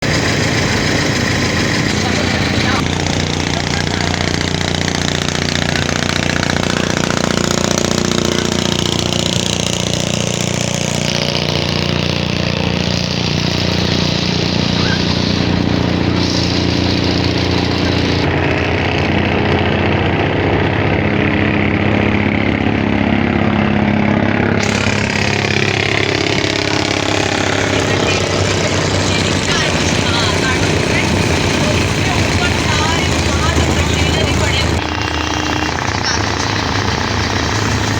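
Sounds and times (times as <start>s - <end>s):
boat engine low drone: 0.0s - 37.9s.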